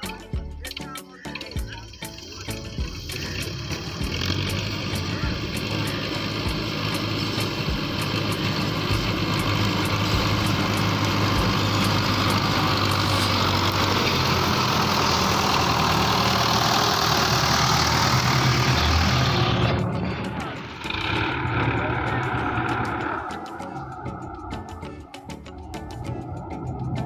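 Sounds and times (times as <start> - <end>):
tractor engine running: 0.0 - 27.0
broad rushing noise: 2.1 - 27.0.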